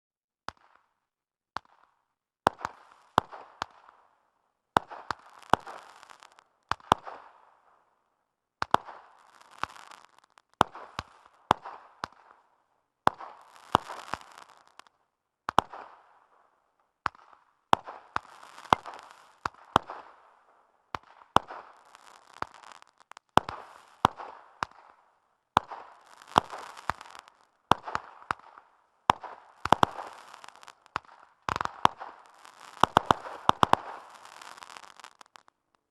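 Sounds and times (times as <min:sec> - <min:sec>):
firework bangs: 0:04.8 - 0:07.3, 0:13.1 - 0:14.9, 0:17.1 - 0:25.0, 0:25.6 - 0:35.5
firework crackling: 0:04.8 - 0:07.6, 0:08.6 - 0:12.4, 0:13.1 - 0:14.9, 0:17.1 - 0:35.8.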